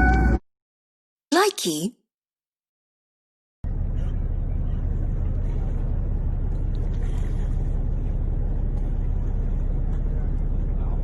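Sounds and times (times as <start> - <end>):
boat engine rumbling: 3.6 - 11.0.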